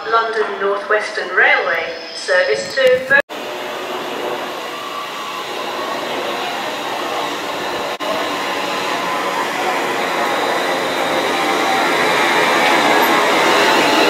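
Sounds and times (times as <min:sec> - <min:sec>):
train motor whine: 0:02.7 - 0:14.0
wheels on rail: 0:02.9 - 0:14.0.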